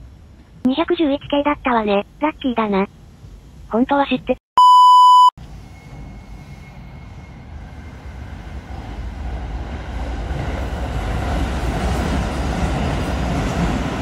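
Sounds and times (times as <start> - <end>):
train wheels rumbling: 5.4 - 14.0.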